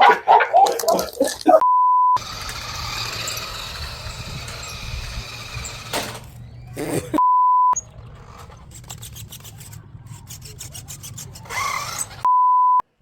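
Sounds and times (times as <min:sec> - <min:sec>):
rubbing and clicking handling noise: 0:07.8 - 0:12.3
short electronic beep: 0:12.3 - 0:12.8.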